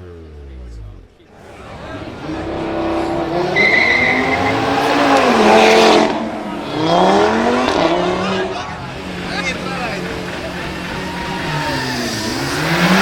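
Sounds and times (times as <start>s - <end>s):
car engine accelerating: 0.0s - 13.0s
tyre squeal: 1.9s - 5.5s.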